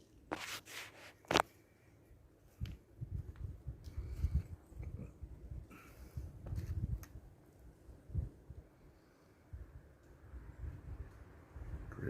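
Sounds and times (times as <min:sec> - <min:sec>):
wind buffeting microphone: 0:02.5 - 0:08.7, 0:09.5 - 0:12.0.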